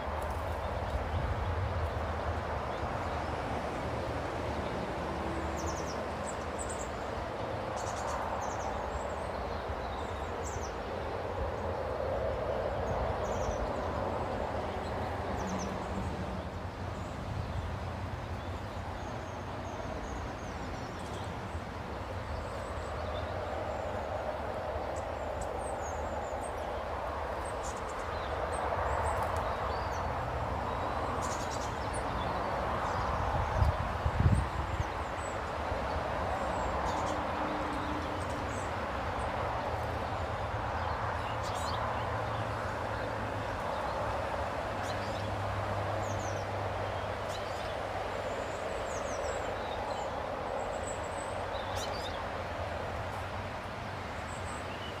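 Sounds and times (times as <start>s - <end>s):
small birds chirping: 5.5s - 53.4s.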